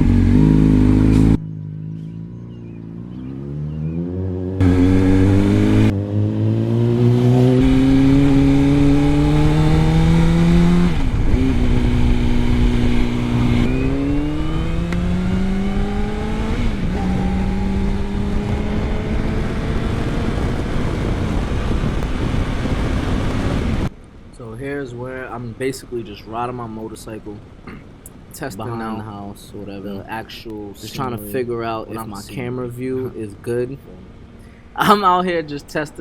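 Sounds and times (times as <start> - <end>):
motorcycle engine accelerating: 0.0 - 23.9
wind on microphone: 7.5 - 23.9.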